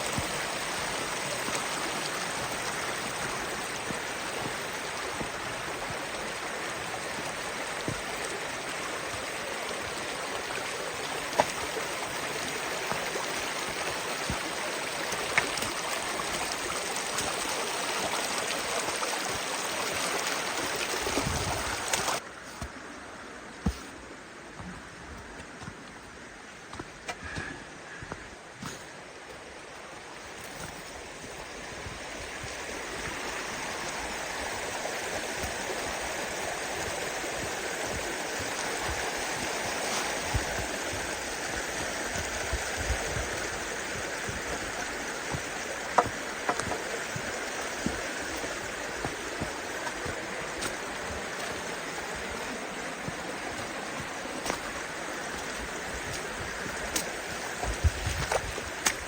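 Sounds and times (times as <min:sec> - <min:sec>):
water rushing: 0:00.0 - 0:24.6, 0:29.0 - 0:59.0.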